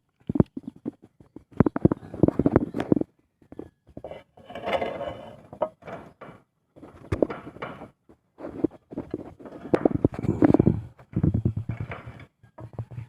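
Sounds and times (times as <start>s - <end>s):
clicks and knocks: 0.2s - 8.0s.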